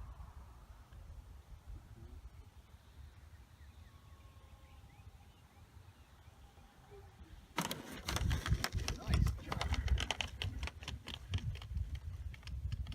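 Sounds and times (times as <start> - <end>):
faint distant whine: 0.0 - 7.7
clattering and rustling: 7.6 - 11.7
wind rumble on microphone: 8.0 - 12.9.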